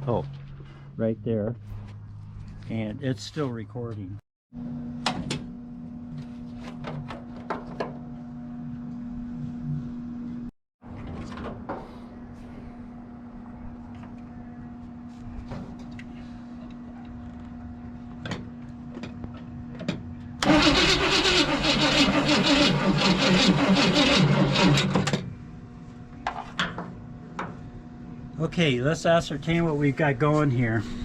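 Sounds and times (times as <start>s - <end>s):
starter motor cranking engine: 20.4s - 25.3s.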